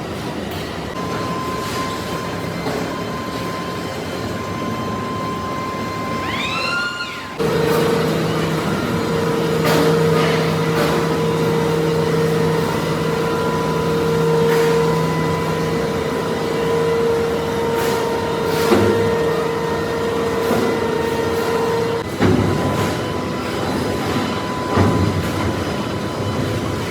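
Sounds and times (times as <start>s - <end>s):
heavy machinery humming: 0.0s - 26.9s.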